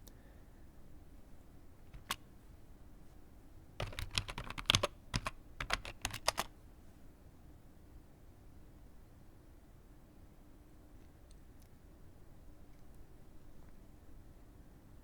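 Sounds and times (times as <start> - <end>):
computer keyboard typing: 1.9 - 2.2, 3.8 - 6.5.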